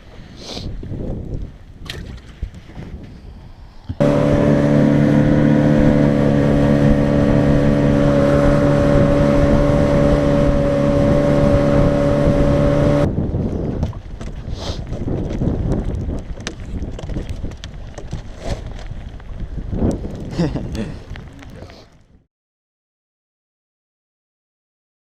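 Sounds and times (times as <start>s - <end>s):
boat motor running: 4.0s - 13.1s.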